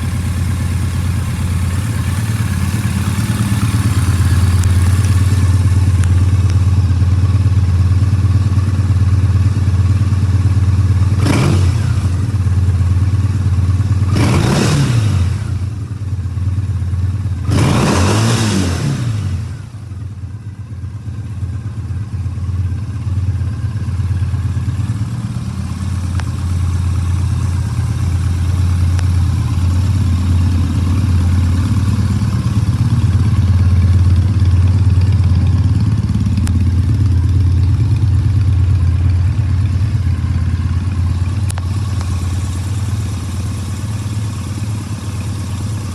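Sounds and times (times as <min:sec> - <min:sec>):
engine throttle blips: 0:00.0 - 0:06.6, 0:34.1 - 0:45.9
motorcycle engine idling: 0:00.0 - 0:14.3, 0:15.4 - 0:17.5, 0:19.5 - 0:45.9.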